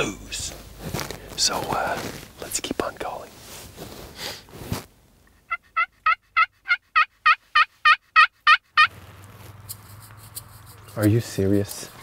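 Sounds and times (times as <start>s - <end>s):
turkey call yelps: 5.5s - 8.9s.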